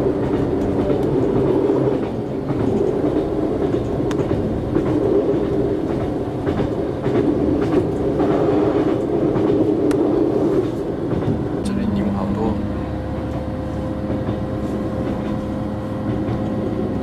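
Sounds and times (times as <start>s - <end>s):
wheels clicking over rail joints: 0.0s - 11.7s, 13.1s - 17.0s
train wheels rumbling on rail: 0.0s - 17.0s.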